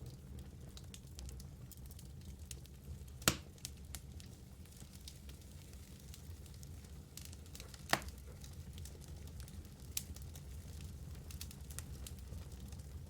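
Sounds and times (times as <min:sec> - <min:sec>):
fire rumbling in fireplace: 0:00.0 - 0:13.0
small fire crackles: 0:00.0 - 0:13.0
loud sharp wood pops: 0:03.2 - 0:03.4.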